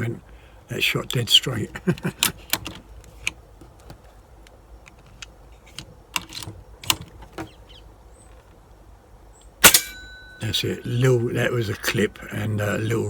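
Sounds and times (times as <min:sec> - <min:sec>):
air rifle handling clicks: 0:02.0 - 0:07.2.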